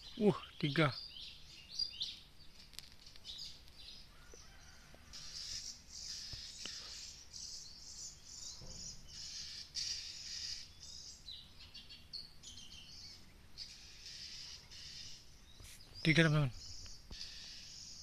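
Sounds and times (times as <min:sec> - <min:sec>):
birds chirping and whistling: 0:00.0 - 0:18.0
insects humming: 0:00.0 - 0:18.0.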